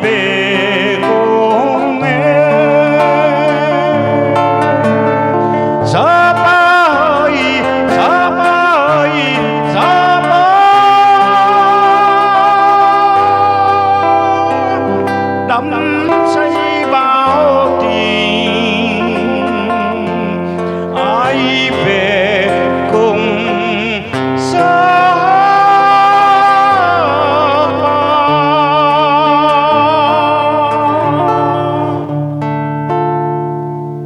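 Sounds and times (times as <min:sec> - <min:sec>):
guitar: 0:00.0 - 0:34.0
person singing with vibrato: 0:00.0 - 0:34.0.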